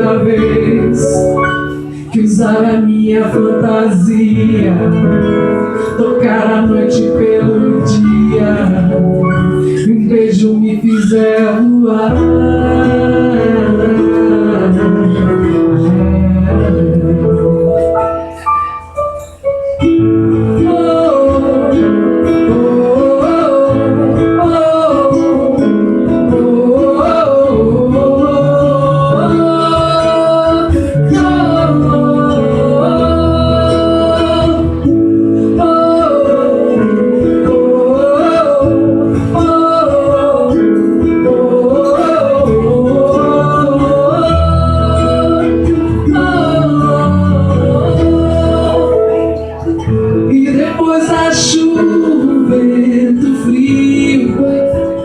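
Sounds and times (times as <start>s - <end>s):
bending lead melody: 0.0s - 55.0s
guitar chords: 0.0s - 55.0s
bass line: 19.8s - 55.0s.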